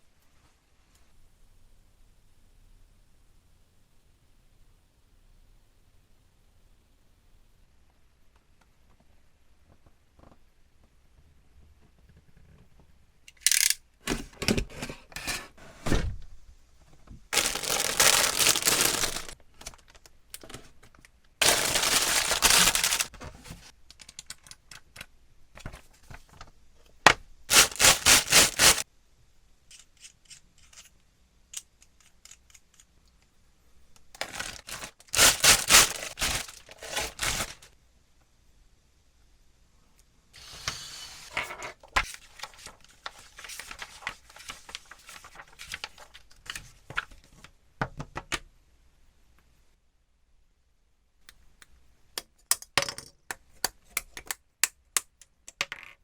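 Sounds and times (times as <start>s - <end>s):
plastic parts clicking and knocking: 13.3s - 14.7s, 51.3s - 56.0s.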